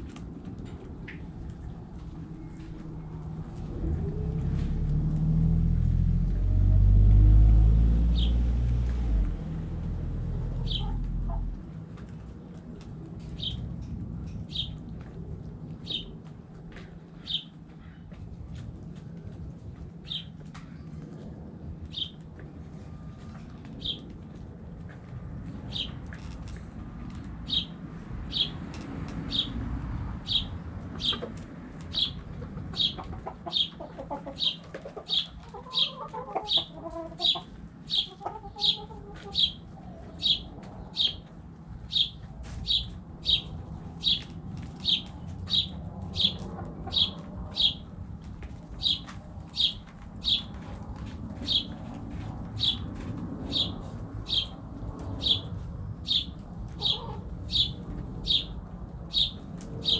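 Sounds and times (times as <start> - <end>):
hen clucking: 10.4 - 11.6, 30.3 - 41.2, 44.8 - 47.8, 49.6 - 50.5, 56.1 - 57.7
bird chirping: 10.6 - 11.0, 30.3 - 31.3, 31.9 - 32.2, 34.4 - 41.2, 41.9 - 47.8, 48.8 - 50.5, 51.4 - 51.7, 52.6 - 52.9, 53.5 - 54.6, 55.2 - 59.9.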